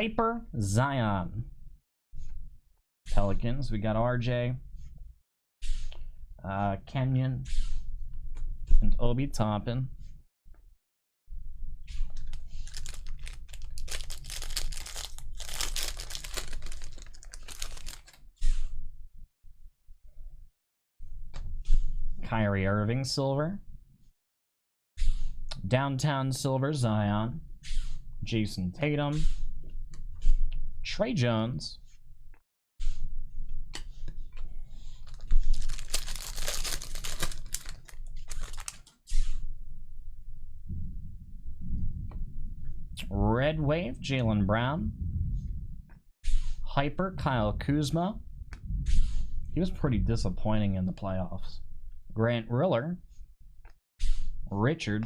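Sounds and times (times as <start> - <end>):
cards rustling: 12.2 - 18.2, 34.8 - 38.9
foil wrapper tearing and crinkling: 12.2 - 18.2, 35.0 - 38.9.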